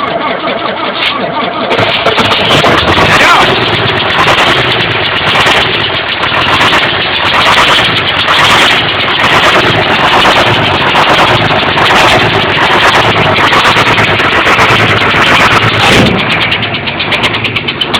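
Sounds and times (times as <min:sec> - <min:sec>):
diesel truck engine clattering: 0:00.0 - 0:17.9.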